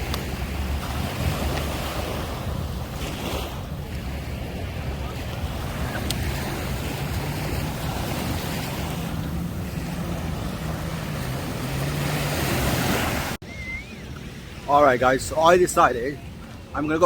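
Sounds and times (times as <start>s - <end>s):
waves washing on beach: 0.0s - 13.4s
wind rumbling on microphone: 0.0s - 15.4s.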